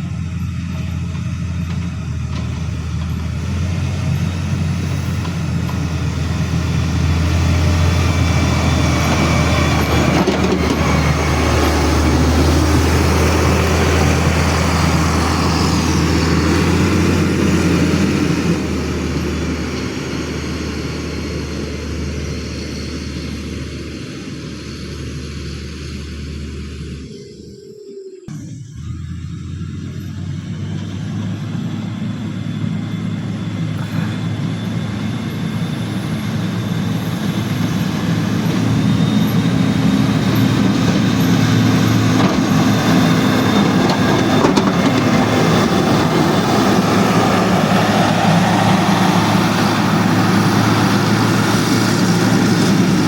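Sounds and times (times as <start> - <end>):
heavy vehicle engine droning: 0.0 - 53.0.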